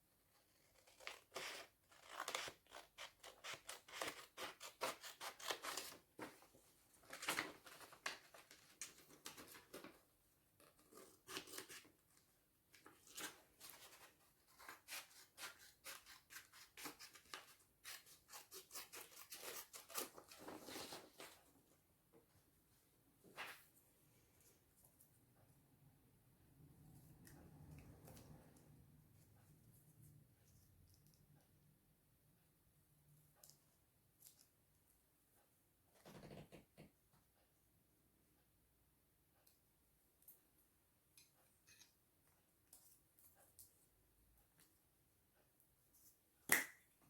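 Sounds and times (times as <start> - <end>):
scissors snipping paper: 0.6 - 6.0, 10.7 - 11.9, 12.8 - 20.8.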